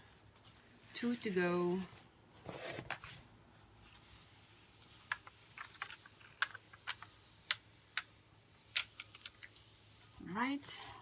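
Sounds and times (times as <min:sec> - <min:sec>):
small clicks and taps of sheets: 0:04.8 - 0:09.8.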